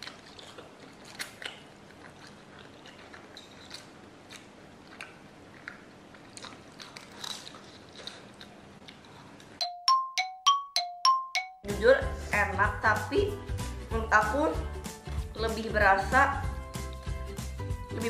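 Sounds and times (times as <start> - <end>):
chewing fried noodles: 0.0 - 9.6
bright repeating chimes: 9.6 - 11.7.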